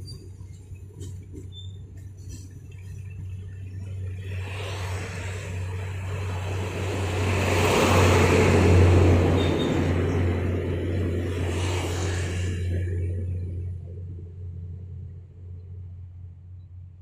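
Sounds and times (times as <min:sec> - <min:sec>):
vehicle passing close by: 0:03.7 - 0:15.3.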